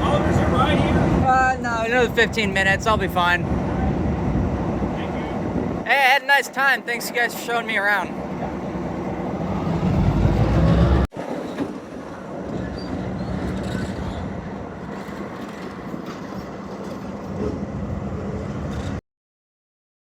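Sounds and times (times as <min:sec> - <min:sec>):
train rumbling on rails: 0:00.0 - 0:19.0
loud low rumble: 0:08.2 - 0:11.1.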